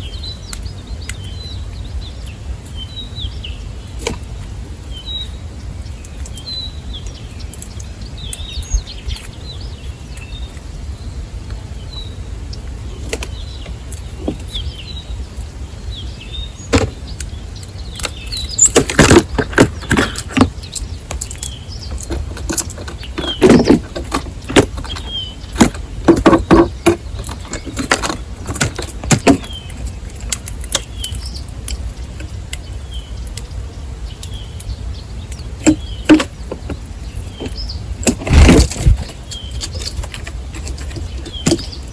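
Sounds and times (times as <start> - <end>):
songbirds chirping: 0.0 - 41.9
sharp taps and knocks: 16.7 - 17.3, 18.0 - 30.9, 35.6 - 41.8.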